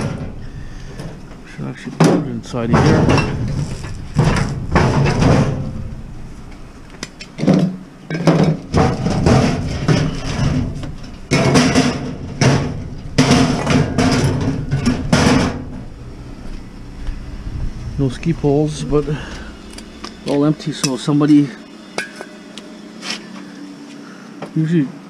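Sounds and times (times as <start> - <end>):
scrap items knocking and clattering: 0.0 - 1.2, 1.9 - 5.9, 7.3 - 15.9.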